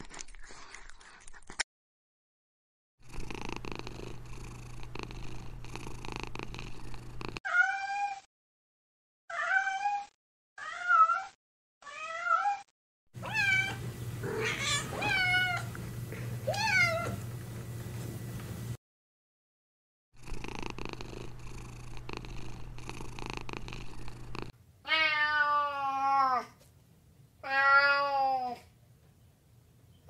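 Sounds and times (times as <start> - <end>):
cat purring: 3.0 - 7.4, 20.2 - 24.5
cat meowing: 7.5 - 8.3, 9.3 - 15.7, 16.5 - 17.2, 24.8 - 26.5, 27.4 - 28.6.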